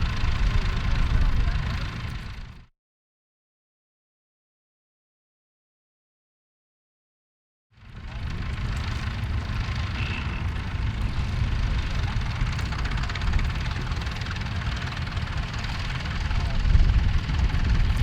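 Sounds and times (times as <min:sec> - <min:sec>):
tractor engine running: 0:00.0 - 0:02.7, 0:07.8 - 0:18.0.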